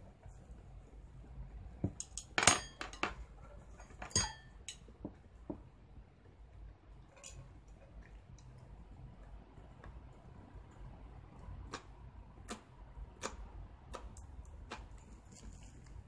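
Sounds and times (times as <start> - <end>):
cutlery clinking against a dish: 2.0 - 3.2, 4.0 - 4.9.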